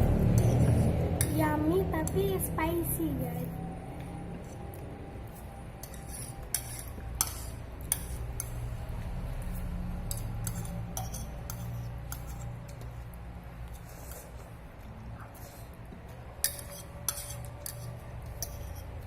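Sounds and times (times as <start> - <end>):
low steady hum: 0.0 - 19.0
utensils clinking against a bowl: 5.8 - 8.6, 9.4 - 13.0, 16.4 - 19.0.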